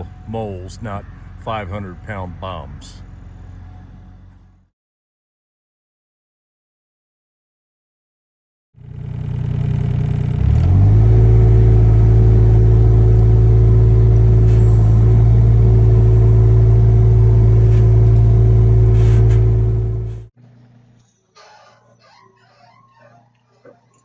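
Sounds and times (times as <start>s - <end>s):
diesel engine revving: 0.0s - 4.6s, 8.8s - 20.3s.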